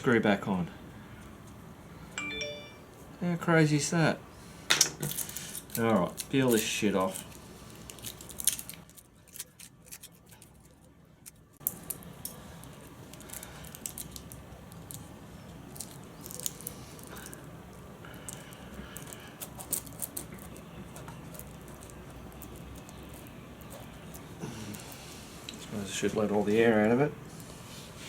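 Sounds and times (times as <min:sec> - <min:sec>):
low steady hum: 0:00.0 - 0:28.0
patch crinkling: 0:05.2 - 0:17.5, 0:18.1 - 0:25.2.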